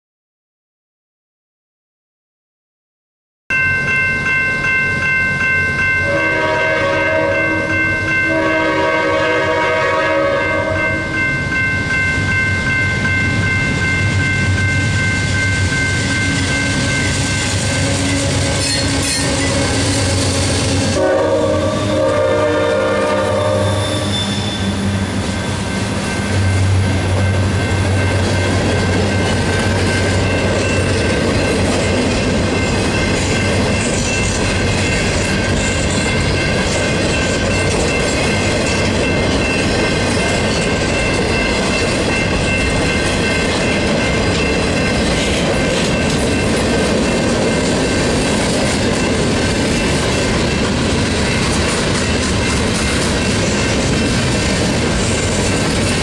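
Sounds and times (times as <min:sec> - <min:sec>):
crossing bell ringing: 0:03.5 - 0:56.0
train horn blasts: 0:06.0 - 0:11.2, 0:17.7 - 0:25.5
locomotive engine rumbling: 0:12.3 - 0:56.0
train wheels clattering on rails: 0:25.2 - 0:56.0.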